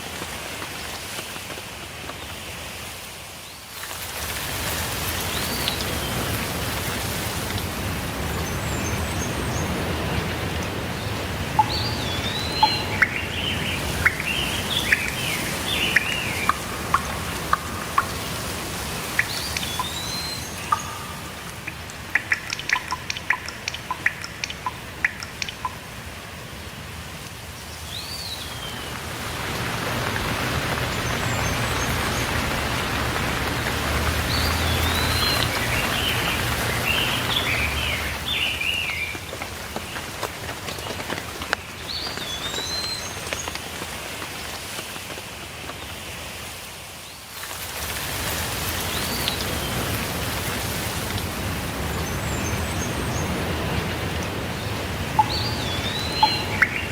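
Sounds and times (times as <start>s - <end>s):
steady rainfall: 0.0s - 56.9s
water drops dripping: 4.9s - 26.2s, 28.5s - 43.7s, 48.8s - 56.9s
small birds chirping: 5.2s - 25.9s, 27.7s - 43.7s, 51.8s - 56.9s.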